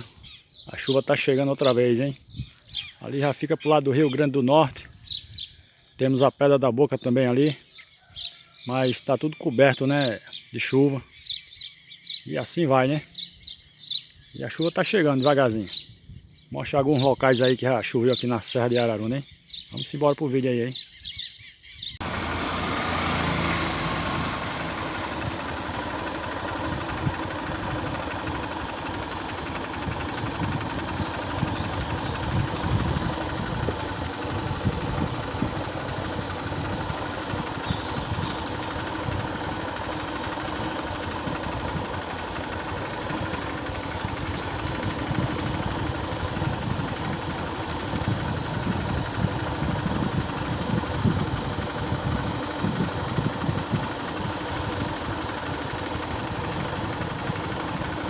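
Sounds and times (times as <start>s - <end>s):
even rushing noise: 22.0s - 37.6s
vehicle engine running: 22.0s - 58.0s.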